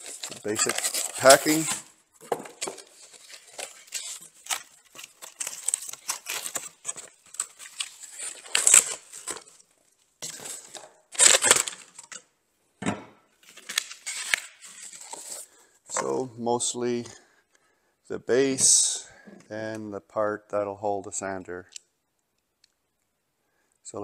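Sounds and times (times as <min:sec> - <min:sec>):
packing material rustling: 0:00.0 - 0:12.2, 0:13.4 - 0:15.6.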